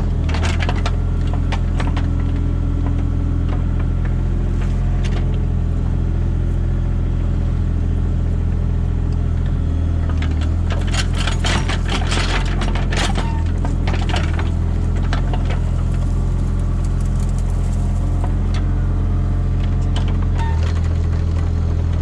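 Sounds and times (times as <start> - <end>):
excavator diesel engine running: 0.0 - 22.0
metal clanking and rattling: 10.7 - 18.3.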